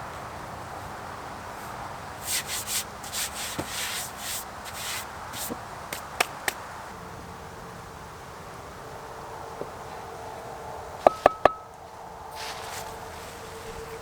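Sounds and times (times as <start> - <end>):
rubbing and scraping strokes: 2.2 - 6.1.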